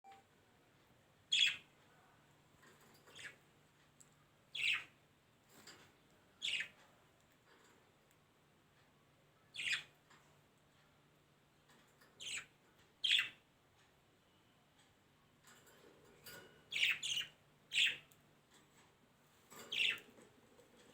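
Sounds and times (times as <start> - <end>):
bird chirping: 1.3 - 1.7, 2.9 - 3.4, 4.5 - 5.0, 6.3 - 7.0, 9.4 - 10.2, 12.1 - 13.5, 16.7 - 18.2, 19.6 - 20.2.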